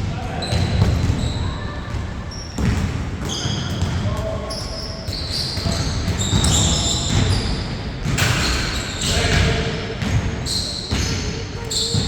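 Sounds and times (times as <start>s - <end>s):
basketball bouncing on court: 0.4s - 12.0s
shoes squeaking: 3.3s - 9.3s, 10.4s - 12.0s.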